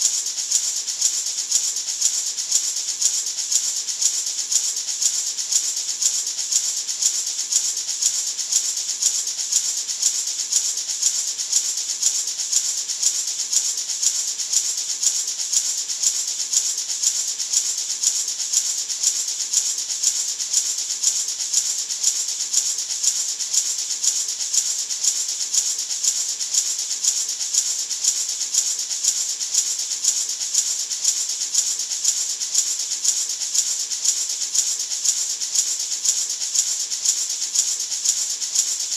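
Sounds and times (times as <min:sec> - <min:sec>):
gourd maraca rattling: 0:00.0 - 0:38.9.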